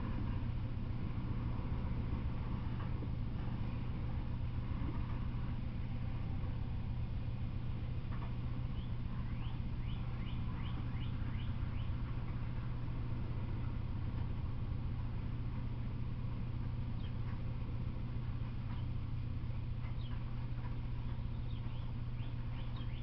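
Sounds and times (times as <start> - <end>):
freight train rumbling past: 0.0 - 23.0
bird chirping: 8.7 - 12.0, 17.0 - 17.3, 19.8 - 20.3, 21.1 - 23.0.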